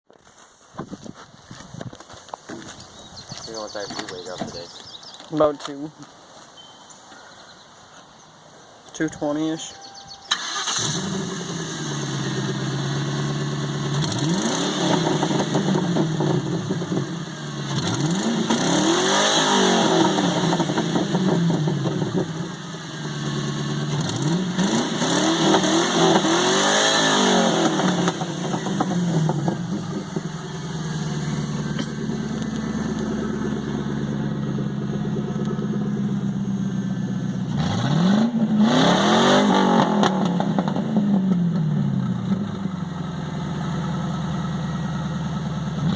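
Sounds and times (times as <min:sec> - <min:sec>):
car engine idling and revving: 0:09.7 - 0:45.9.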